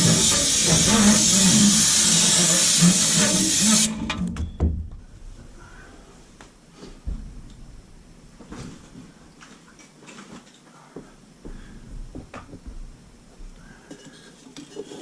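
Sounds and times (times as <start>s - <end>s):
tools tapping and scraping metal: 13.8s - 15.0s.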